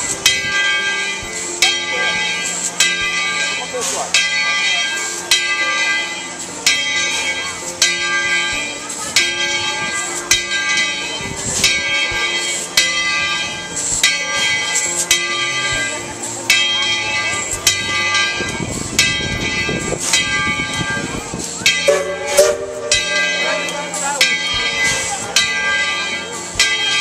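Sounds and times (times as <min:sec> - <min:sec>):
locomotive bell ringing: 0:00.0 - 0:27.0.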